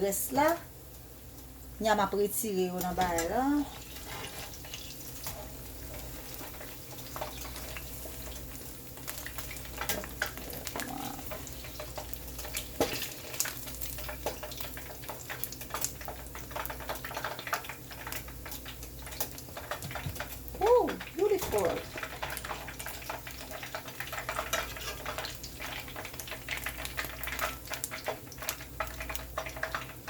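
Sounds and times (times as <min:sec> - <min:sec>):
hot oil sizzling and crackling: 0:00.0 - 0:30.0.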